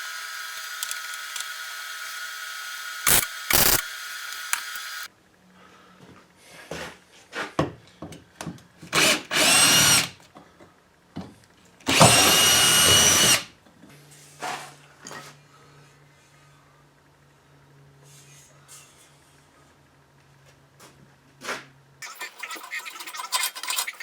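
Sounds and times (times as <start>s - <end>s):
power tool motor whining: 0.0s - 5.1s, 9.0s - 10.1s, 11.9s - 13.5s.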